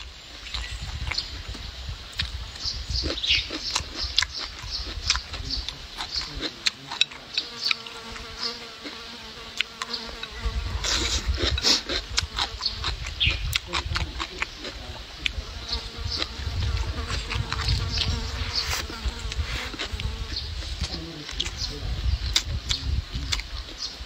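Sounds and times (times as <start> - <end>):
wet chewing and mouth sounds: 0.0 - 24.0
fly buzzing: 7.2 - 13.5, 15.3 - 21.7.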